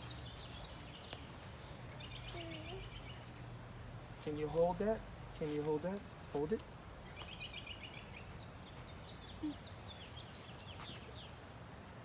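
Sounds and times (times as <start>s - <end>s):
songbird trill: 0.0s - 3.4s, 7.0s - 11.4s
birds chirping: 0.0s - 11.5s
low outdoor background hum: 0.0s - 12.0s.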